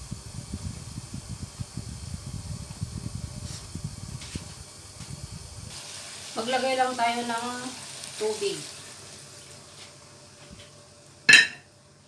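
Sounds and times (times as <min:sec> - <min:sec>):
muffled sizzling in covered pan: 0:00.0 - 0:12.0
faint steady hiss: 0:02.3 - 0:11.7.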